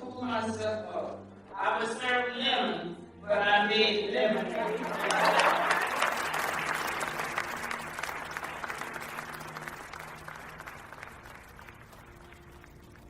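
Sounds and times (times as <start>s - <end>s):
crowd applauding: 4.3s - 13.0s.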